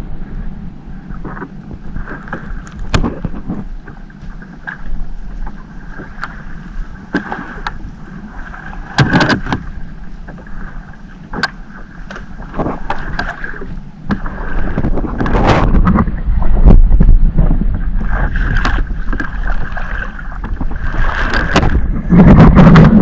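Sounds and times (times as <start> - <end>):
boat motor rumbling and whining: 0.0 - 23.0.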